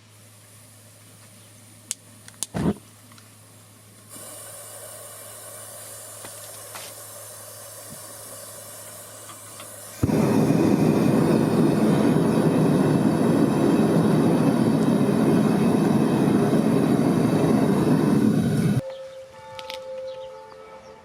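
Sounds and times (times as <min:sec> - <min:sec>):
faint hiss: 0:00.0 - 0:18.8
gas burner rushing: 0:04.1 - 0:18.8.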